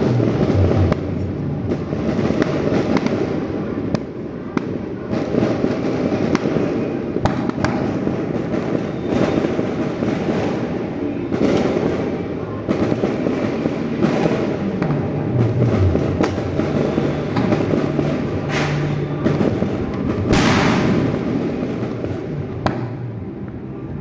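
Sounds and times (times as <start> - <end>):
dense rumble: 0.0 - 2.7, 14.7 - 23.4
fireworks cracks and bangs: 0.0 - 24.0.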